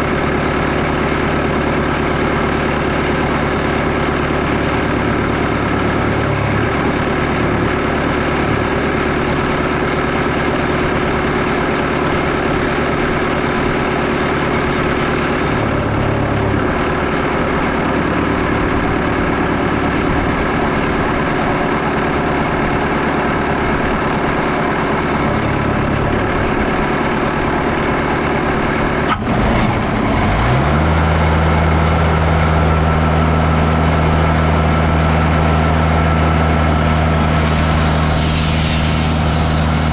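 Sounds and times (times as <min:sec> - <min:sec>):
bandsaw sawmill cutting log: 0:29.1 - 0:39.9.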